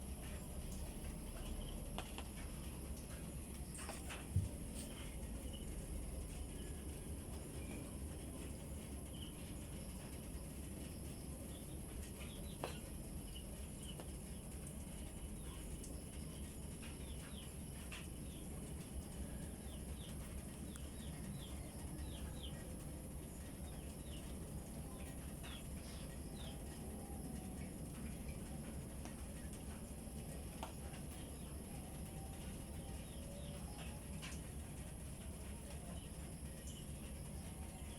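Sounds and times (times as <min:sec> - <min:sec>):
small birds chirping: 0:10.3 - 0:28.4.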